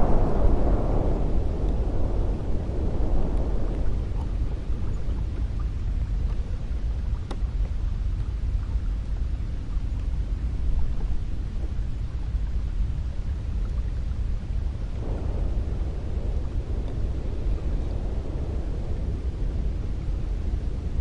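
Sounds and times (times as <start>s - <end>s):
cold wind blowing: 0.0s - 21.0s
faint click: 7.2s - 7.4s.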